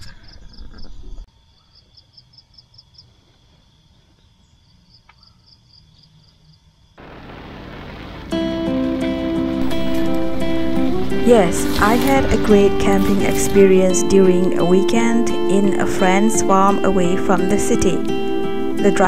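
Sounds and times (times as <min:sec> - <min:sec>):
insects chirping: 0:00.0 - 0:19.0
car driving in rain: 0:07.0 - 0:15.1.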